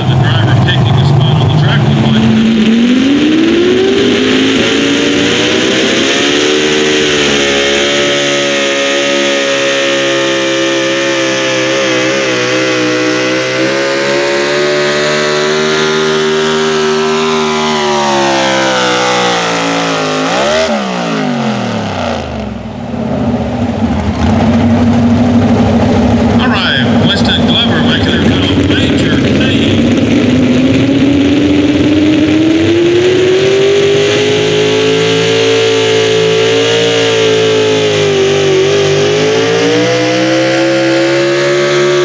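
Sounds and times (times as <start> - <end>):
tractor engine at full throttle: 0.0 - 42.0.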